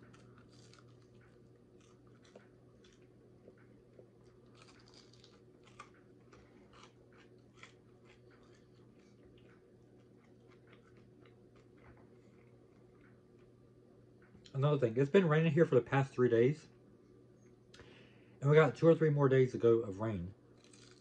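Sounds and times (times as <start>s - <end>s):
crunching fried chicken: 0.0s - 13.4s, 20.1s - 21.0s
low steady hum: 0.0s - 21.0s.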